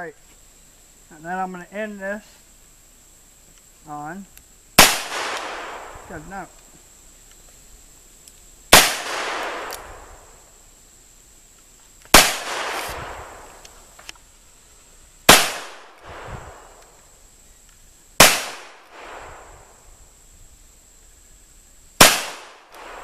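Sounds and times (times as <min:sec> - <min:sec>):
revolver gunshots with echo: 0:04.8 - 0:06.2, 0:08.7 - 0:10.1, 0:12.1 - 0:13.5, 0:15.3 - 0:16.7, 0:18.2 - 0:19.5, 0:22.0 - 0:23.0.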